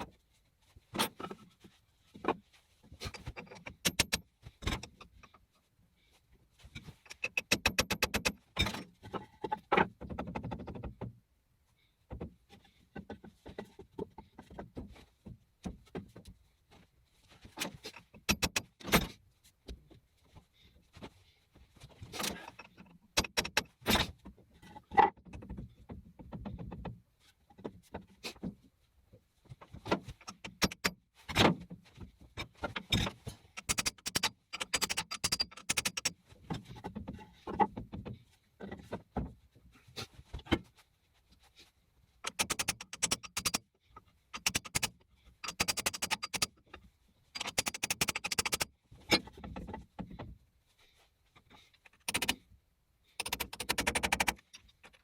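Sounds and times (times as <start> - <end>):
metallic clicks and knocks: 3.1 - 5.3, 6.9 - 11.1, 17.6 - 19.1, 22.2 - 24.1, 29.9 - 31.5, 32.4 - 39.0, 42.2 - 43.7, 44.3 - 46.8, 47.4 - 50.3, 51.9 - 52.4, 53.2 - 55.0
metal parts rattling: 42.3 - 43.6, 47.4 - 48.7.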